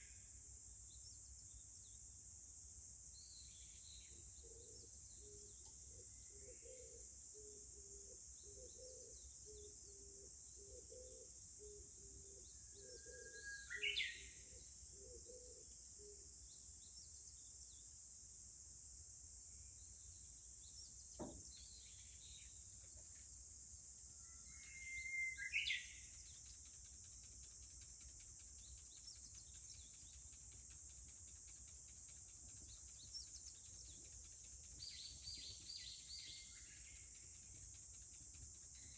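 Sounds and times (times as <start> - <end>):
high-pitched insect drone: 24.0 - 38.9
bird singing whistle and flourish: 24.4 - 27.2, 32.4 - 37.6.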